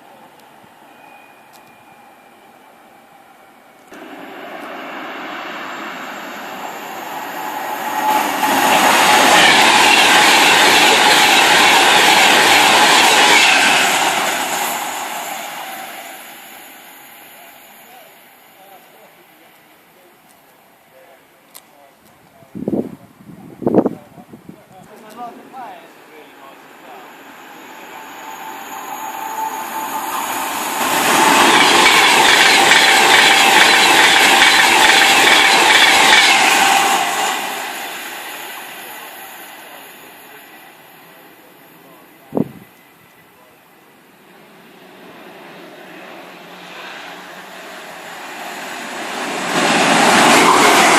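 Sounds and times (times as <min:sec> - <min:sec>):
wheels rushing on rail: 0:00.0 - 0:20.3, 0:25.0 - 0:50.9
train passing: 0:00.0 - 0:21.5, 0:24.8 - 0:50.9
thin steady whine: 0:25.2 - 0:31.0.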